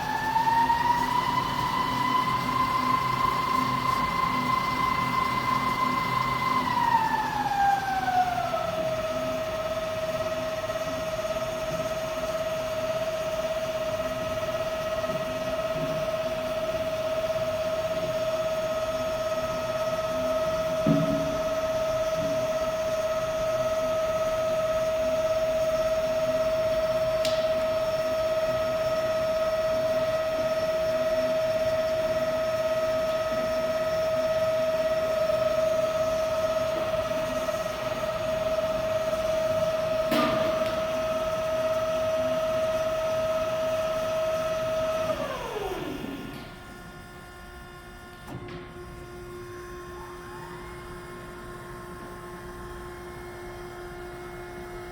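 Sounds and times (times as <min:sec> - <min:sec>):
band saw whining: 0:00.0 - 0:09.6.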